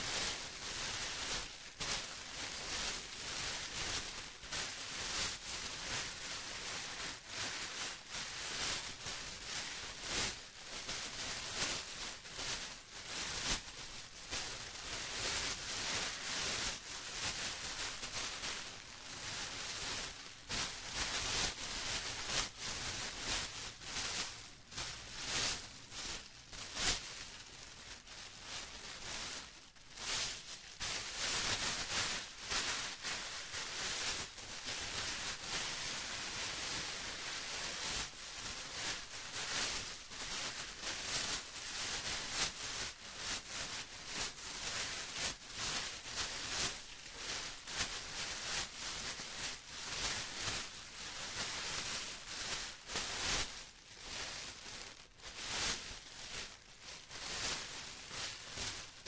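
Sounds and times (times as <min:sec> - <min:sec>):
plastic crumpling and rustling: 0:00.0 - 0:59.0.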